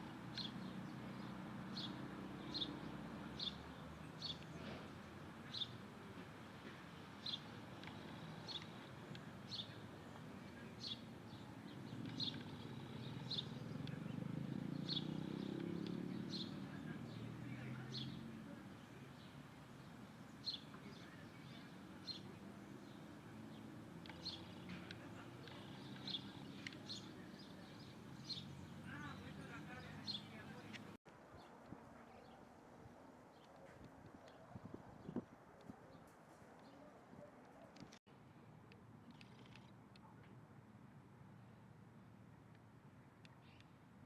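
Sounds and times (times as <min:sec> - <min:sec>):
bird chirping: 0:07.1 - 0:31.0.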